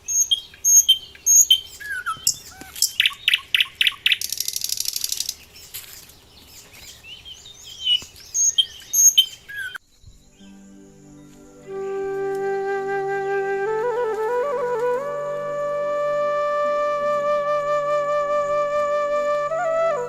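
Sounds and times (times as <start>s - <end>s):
bird whistles and chirps: 0.0s - 5.4s, 6.8s - 10.2s
dry high rattling bird trill: 0.1s - 6.1s
faint low flute-like music: 10.1s - 20.0s.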